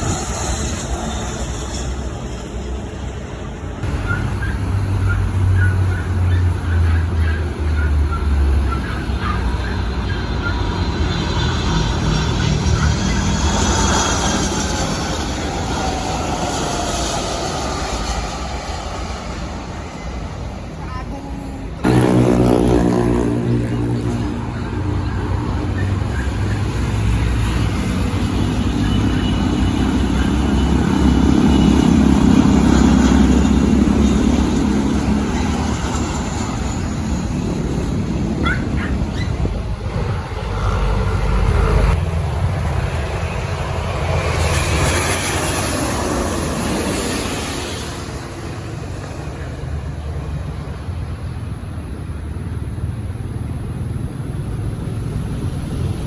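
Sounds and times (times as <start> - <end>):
jet airliner engine roar: 0.0 - 56.0.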